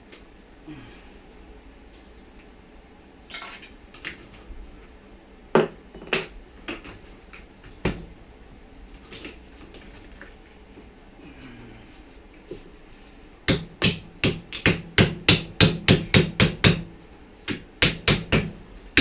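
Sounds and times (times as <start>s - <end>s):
metal tools clinking and knocking: 3.3s - 4.5s, 8.9s - 9.9s.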